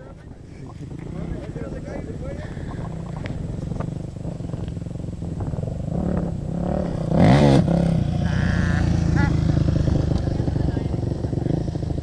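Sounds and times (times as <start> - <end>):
motocross bike engine revving: 0.8 - 12.0.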